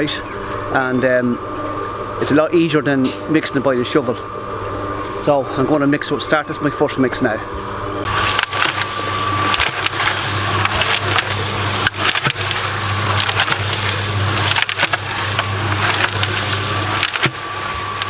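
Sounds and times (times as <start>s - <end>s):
mixer motor humming: 0.0s - 18.0s
gravel tumbling in a drum: 8.1s - 18.0s
stones clacking: 8.1s - 18.0s.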